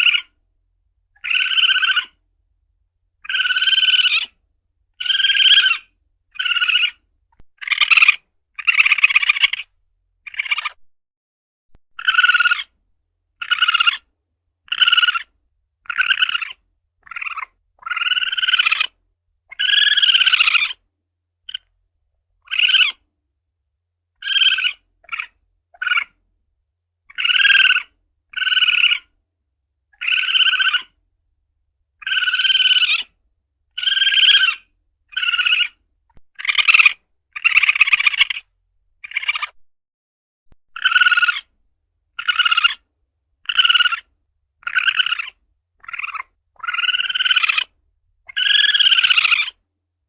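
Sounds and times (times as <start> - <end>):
civet harsh piercing calls: 0.0 - 0.4, 1.2 - 2.2, 3.2 - 4.4, 5.0 - 7.0, 7.6 - 9.7, 10.3 - 10.8, 12.0 - 12.8, 13.4 - 14.1, 14.7 - 20.8, 21.5 - 21.7, 22.4 - 23.0, 24.2 - 26.2, 27.1 - 29.1, 30.0 - 31.0, 32.0 - 39.6, 40.8 - 41.5, 42.1 - 42.8, 43.4 - 49.6.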